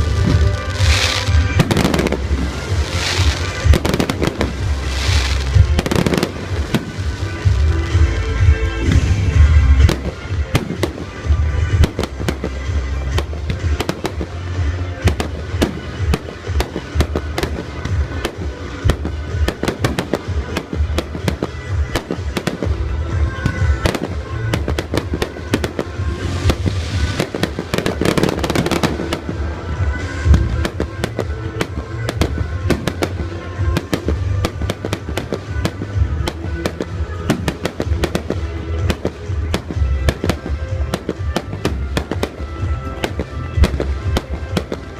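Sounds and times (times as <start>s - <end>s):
fireworks bursting: 0.0s - 44.9s
fireworks fizzing and crackling: 0.0s - 44.9s
music with heavy bass: 0.0s - 44.9s.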